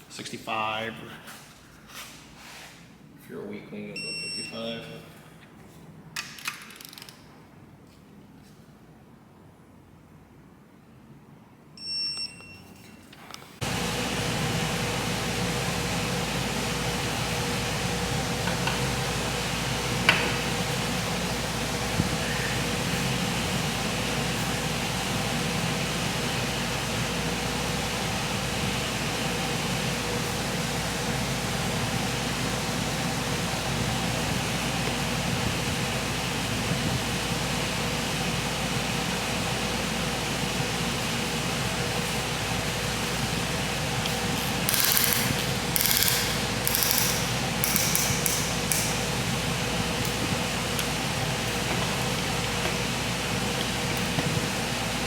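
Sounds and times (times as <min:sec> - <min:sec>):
background hiss and hum: 0:10.5 - 0:55.0
ratchet wrench clicking: 0:44.4 - 0:48.9.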